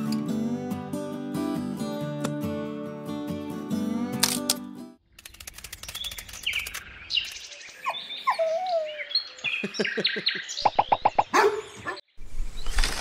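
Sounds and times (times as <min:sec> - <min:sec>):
birds chirping: 0:05.3 - 0:13.0
dog barking: 0:11.3 - 0:12.0.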